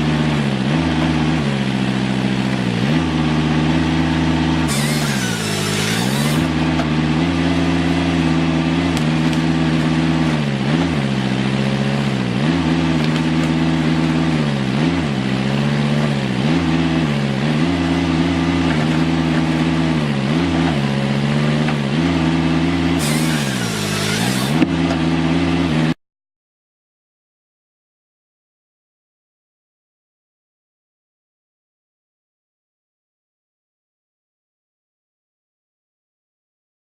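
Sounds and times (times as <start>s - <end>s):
atv engine revving: 0.0s - 26.0s.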